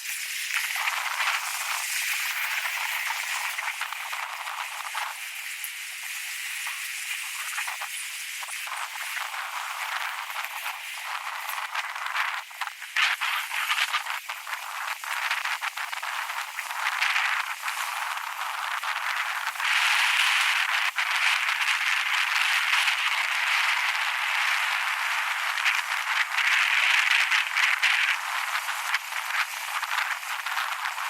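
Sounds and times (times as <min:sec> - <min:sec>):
wind rushing over microphone: 0:08.5 - 0:31.0.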